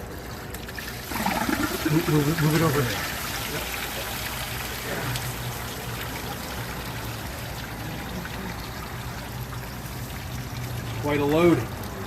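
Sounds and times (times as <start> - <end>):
coolant pouring and splashing: 0.0 - 12.0.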